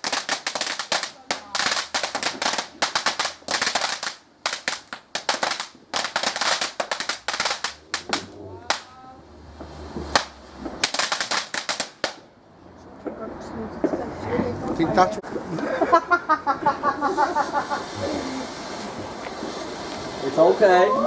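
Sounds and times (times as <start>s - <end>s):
fireworks crackling: 0.0s - 21.0s
low rumble: 7.5s - 10.8s.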